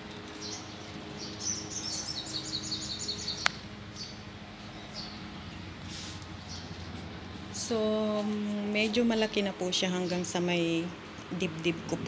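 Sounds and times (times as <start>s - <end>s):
small bird chirping: 0.4s - 5.2s
sharp click: 3.4s - 3.7s.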